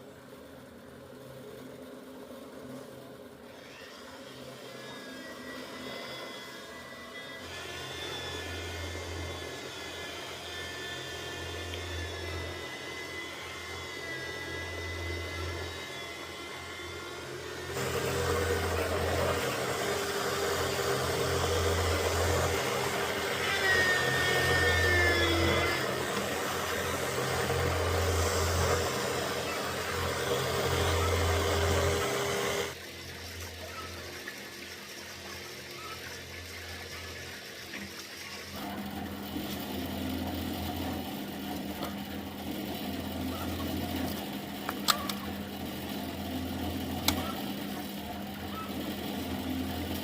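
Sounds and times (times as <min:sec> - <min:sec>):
engine running: 0:08.5 - 0:32.8.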